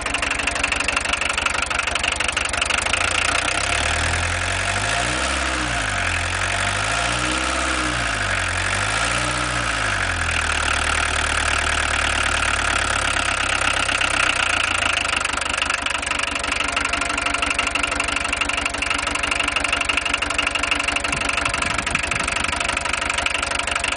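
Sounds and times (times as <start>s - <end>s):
diesel engine revving and idling: 0.0s - 23.9s.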